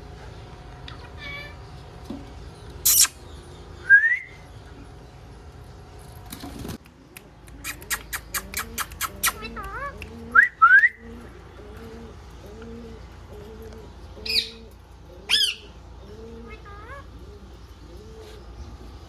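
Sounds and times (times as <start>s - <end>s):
parrot calling: 2.8s - 3.2s, 7.6s - 12.2s, 14.2s - 18.4s.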